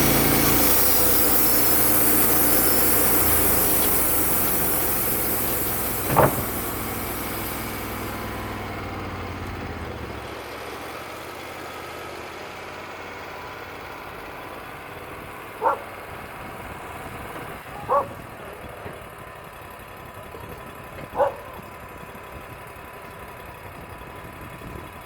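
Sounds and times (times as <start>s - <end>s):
sawing noise: 0.0s - 9.2s
sawmill engine running: 0.0s - 25.0s.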